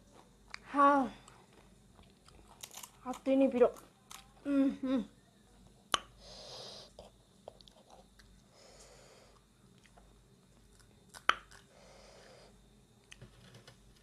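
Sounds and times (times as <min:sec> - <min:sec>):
person chewing crunchy food: 0:00.0 - 0:04.4, 0:06.8 - 0:08.5, 0:09.3 - 0:11.7
breathy hisses: 0:06.2 - 0:07.0, 0:08.5 - 0:09.4, 0:11.7 - 0:12.6.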